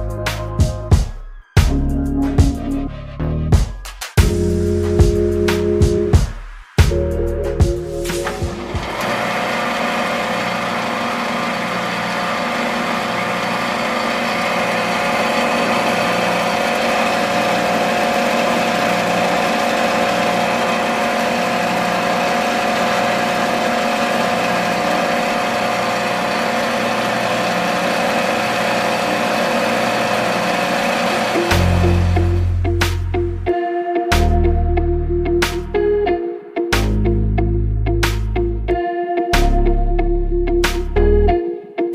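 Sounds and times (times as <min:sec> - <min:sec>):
small motor droning hum: 0:08.4 - 0:32.5.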